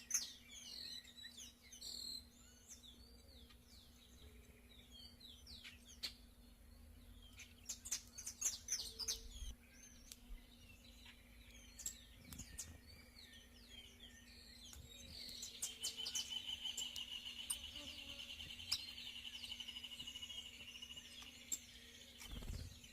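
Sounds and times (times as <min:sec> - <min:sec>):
songbirds chirping: 0:00.0 - 0:22.9.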